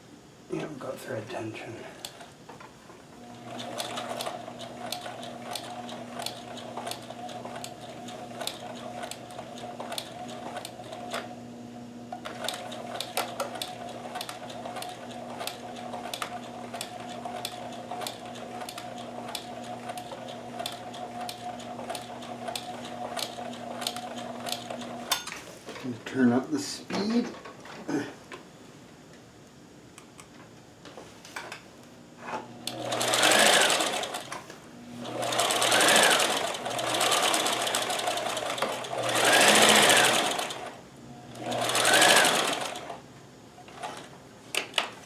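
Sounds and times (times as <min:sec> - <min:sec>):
sewing machine motor humming: 0:03.2 - 0:25.2, 0:32.6 - 0:43.0.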